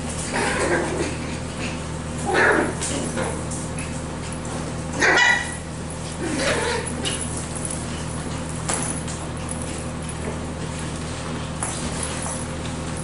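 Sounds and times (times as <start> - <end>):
puppies barking and yipping: 5.0 - 8.1.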